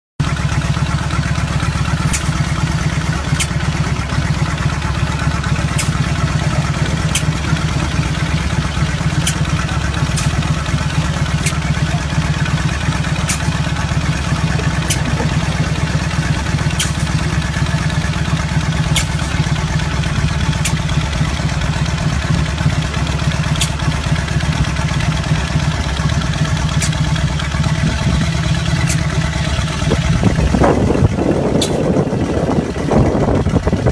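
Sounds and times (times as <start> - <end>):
motorcycle engine running: 0.2 - 33.9
sharp click: 19.0 - 19.4, 31.6 - 31.9.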